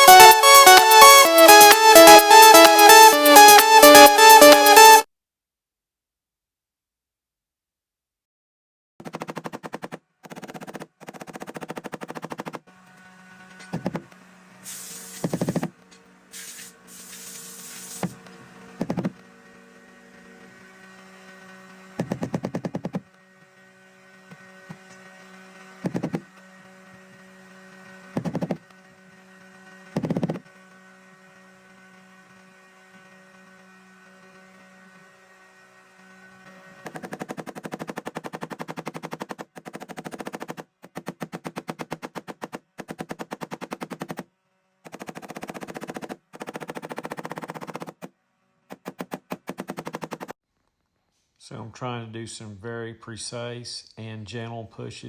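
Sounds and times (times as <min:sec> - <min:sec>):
heat gun humming: 0:12.9 - 0:30.4.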